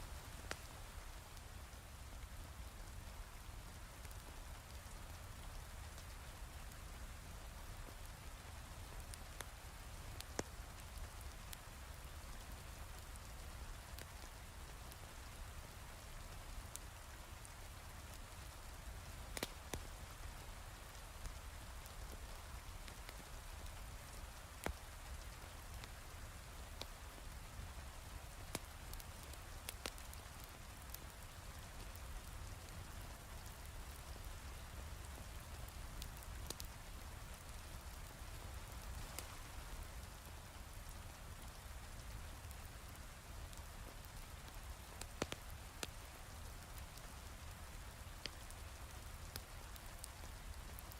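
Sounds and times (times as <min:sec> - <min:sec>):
fireplace crackling pops: 0:19.3 - 0:19.9, 0:28.5 - 0:31.1, 0:36.0 - 0:36.7, 0:43.5 - 0:45.9.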